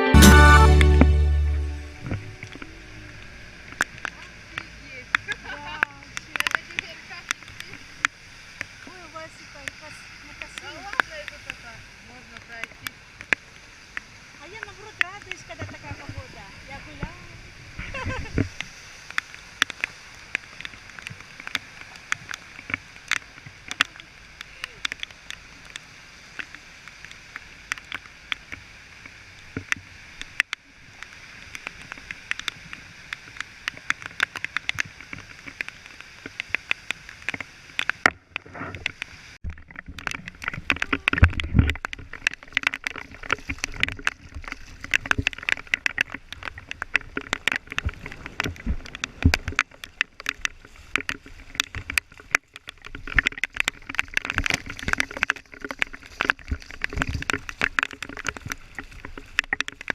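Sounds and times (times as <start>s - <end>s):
heavy rain hissing: 0.0s - 26.8s
raindrops tapping close by: 0.6s - 59.9s.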